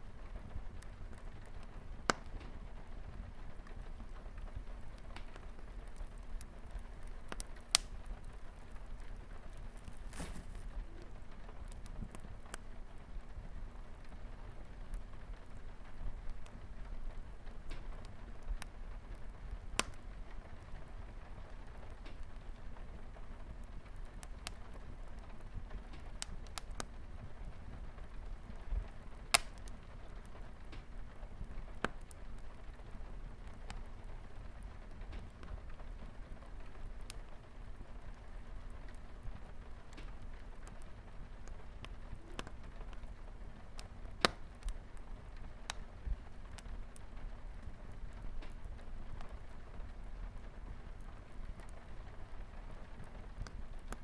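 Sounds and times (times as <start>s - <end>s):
wood fire crackling: 0.0s - 54.0s
rain on a window: 11.2s - 54.0s.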